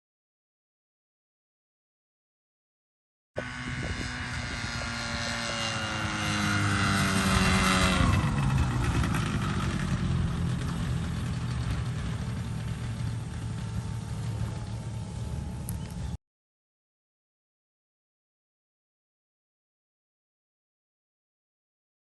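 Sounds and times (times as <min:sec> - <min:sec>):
propeller aircraft flying past: 0:03.4 - 0:16.2.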